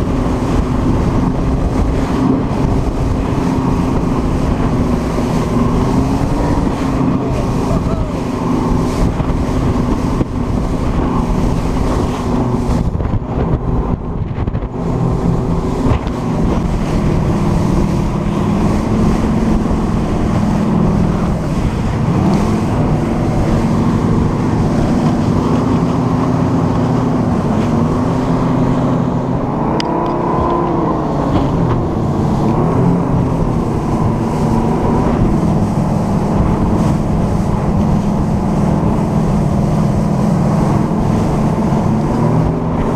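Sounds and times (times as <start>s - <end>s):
boat engines running: 0.0s - 42.9s
wind buffeting microphone: 0.0s - 42.9s.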